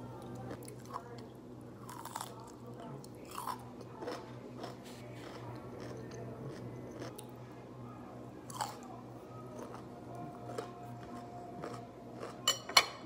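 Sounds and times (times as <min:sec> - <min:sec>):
steady low hum: 0:00.0 - 0:13.0
person crunching raw vegetable: 0:10.4 - 0:12.4.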